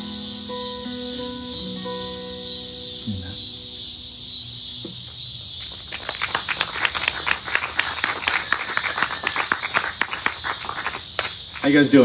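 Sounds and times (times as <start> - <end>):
cicadas buzzing: 0.0 - 12.0
people clapping: 5.6 - 12.0.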